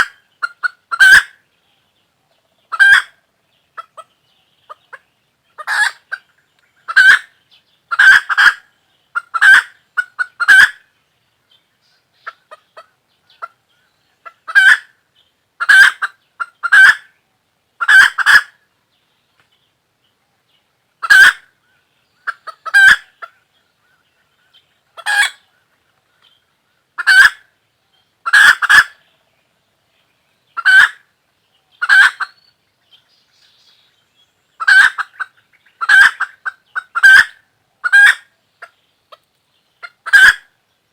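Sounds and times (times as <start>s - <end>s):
chicken calling: 0.0s - 1.4s, 2.6s - 3.2s, 5.6s - 10.9s, 14.2s - 15.0s, 15.6s - 17.1s, 17.8s - 18.6s, 21.0s - 21.6s, 22.2s - 25.8s, 27.0s - 27.5s, 28.2s - 29.0s, 30.6s - 31.1s, 31.7s - 32.4s, 34.6s - 40.6s.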